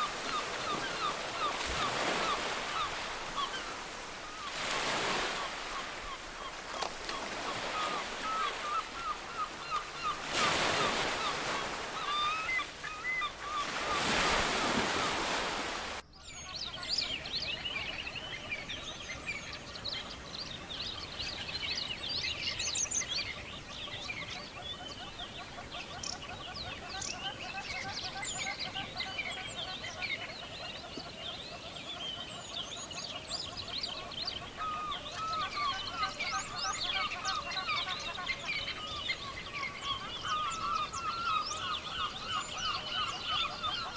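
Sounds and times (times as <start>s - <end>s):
surf washing in and out: 0.0s - 16.0s
bird calling: 0.0s - 19.4s, 20.0s - 43.9s
chorus of many birds: 0.0s - 43.9s.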